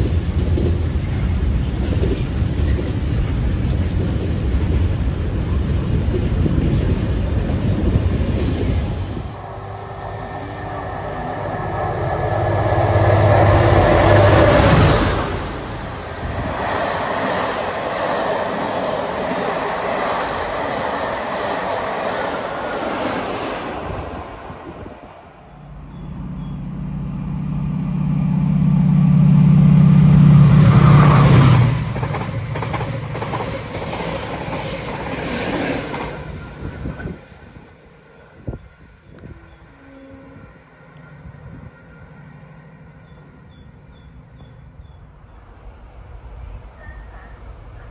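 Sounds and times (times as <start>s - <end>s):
train rushing past: 0.0s - 39.6s
loud low train drone: 0.0s - 47.9s
wheels clacking over rail joints: 30.7s - 37.4s.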